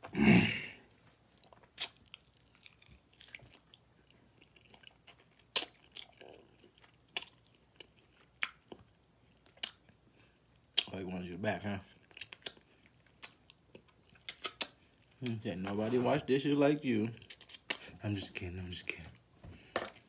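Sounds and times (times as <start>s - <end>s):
person chewing: 1.4s - 10.9s, 11.9s - 15.4s, 17.2s - 18.0s.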